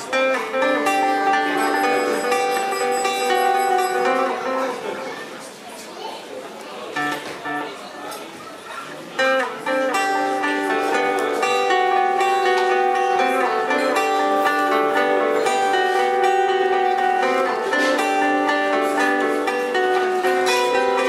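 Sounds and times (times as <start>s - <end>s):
live band playing: 0.0s - 5.2s
plucked strings: 0.0s - 5.7s, 6.9s - 8.4s, 9.1s - 21.0s.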